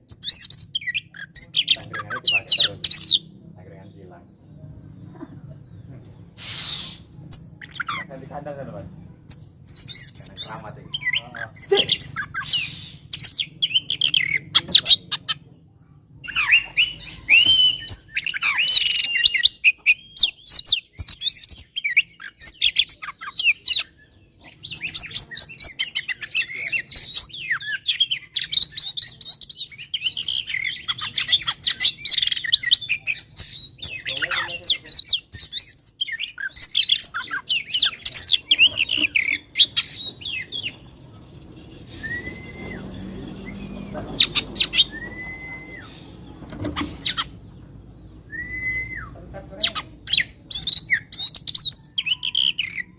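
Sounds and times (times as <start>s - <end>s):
bird singing whistles and chatter: 6.4s - 8.2s, 9.3s - 15.4s, 16.2s - 52.9s.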